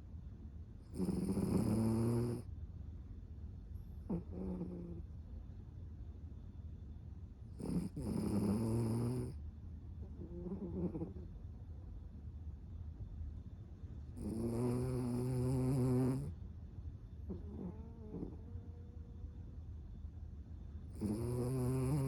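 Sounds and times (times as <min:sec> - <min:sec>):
dog snoring loudly: 0:00.9 - 0:02.5, 0:04.1 - 0:05.0, 0:07.6 - 0:09.4, 0:10.3 - 0:11.1, 0:14.2 - 0:16.3, 0:20.9 - 0:22.0.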